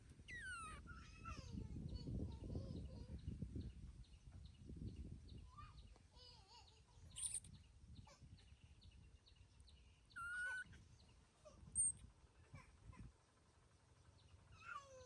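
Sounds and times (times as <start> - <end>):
baby monkey crying: 0.3 - 1.4, 7.2 - 7.4, 10.2 - 10.7, 11.8 - 12.0.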